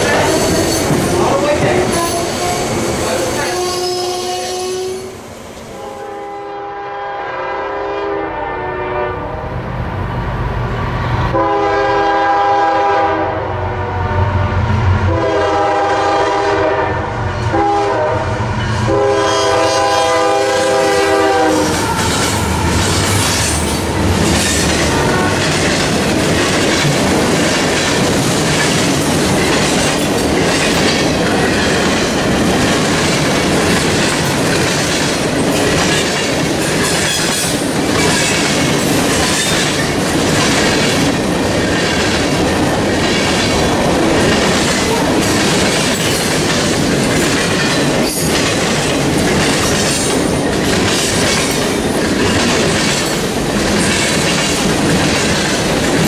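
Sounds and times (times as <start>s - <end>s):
train wheels clattering on rails: 0.0s - 4.9s, 18.6s - 56.0s
locomotive horn blasts: 5.8s - 9.5s, 11.3s - 22.8s, 24.8s - 25.5s.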